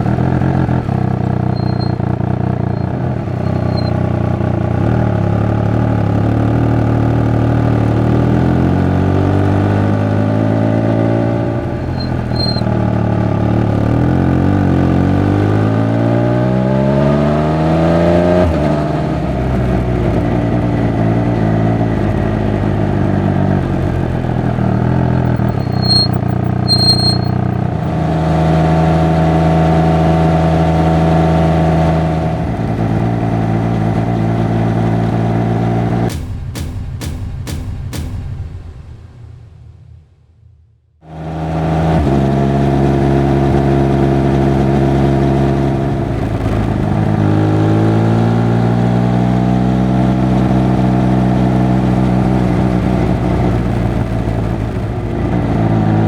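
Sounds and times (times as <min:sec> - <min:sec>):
motorcycle engine and exhaust revving: 0:00.0 - 0:36.2, 0:41.0 - 0:56.0
short high chirps: 0:01.4 - 0:02.0, 0:02.7 - 0:03.9, 0:11.8 - 0:12.6, 0:25.3 - 0:27.5.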